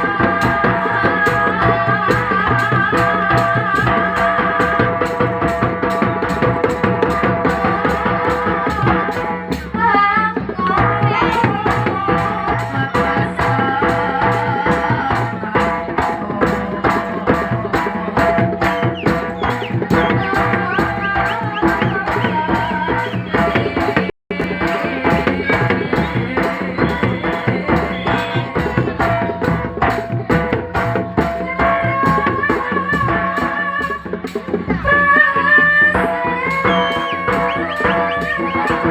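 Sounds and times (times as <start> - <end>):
drums and percussion beat: 0.0 - 38.9
high held melody line: 0.0 - 38.9
wavering melody line: 35.0 - 38.9.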